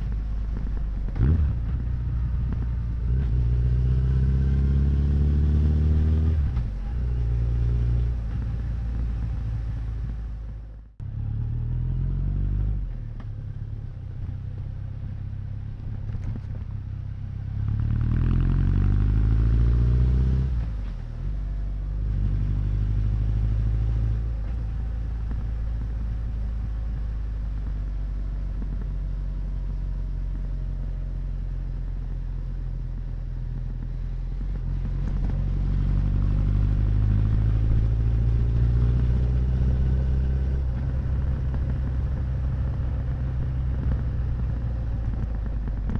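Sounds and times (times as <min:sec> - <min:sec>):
motorcycle engine revving: 0:00.0 - 0:13.1, 0:17.4 - 0:45.9.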